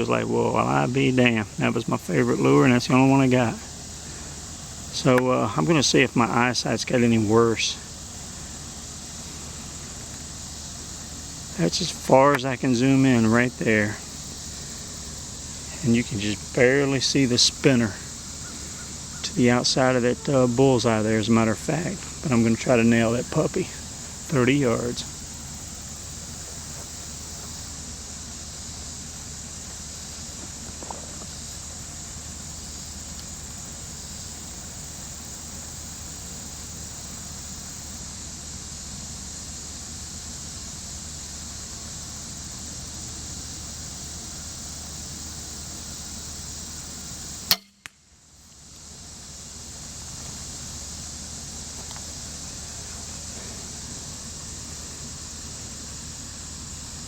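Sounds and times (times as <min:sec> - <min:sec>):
steady outdoor hiss: 0:00.0 - 0:57.0
crossbow firing crack: 0:47.4 - 0:48.1.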